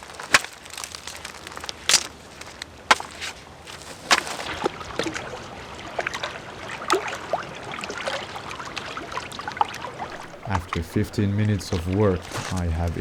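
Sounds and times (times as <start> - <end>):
sticks snapping: 0.0 - 4.5, 10.1 - 10.8, 11.7 - 13.0
branch cracking: 0.0 - 4.6, 10.1 - 13.0.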